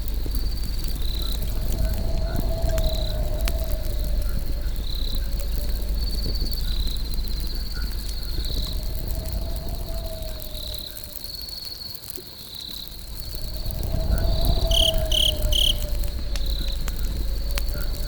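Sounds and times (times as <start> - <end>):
low rumble: 0.0 - 11.5, 12.7 - 18.0
campfire crackling: 0.0 - 18.0
crickets chirping: 0.0 - 18.0.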